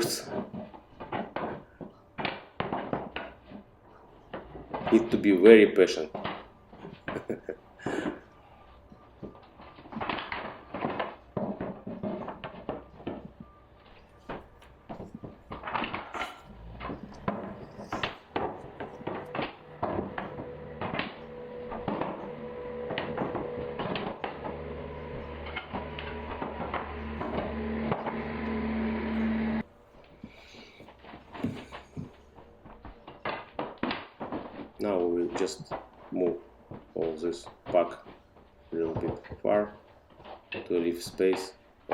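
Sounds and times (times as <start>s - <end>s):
low machine hum: 12.7s - 32.6s.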